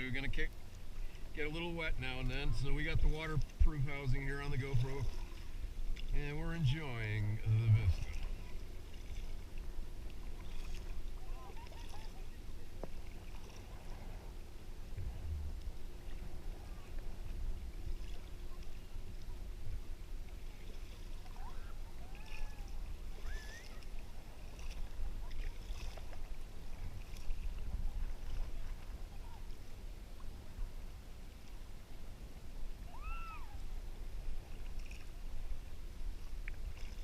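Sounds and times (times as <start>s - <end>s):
kayak paddling: 0.0s - 37.0s
steady low rumble: 0.0s - 37.0s
water lapping and splashing: 0.0s - 37.0s
gliding calls: 21.2s - 23.9s.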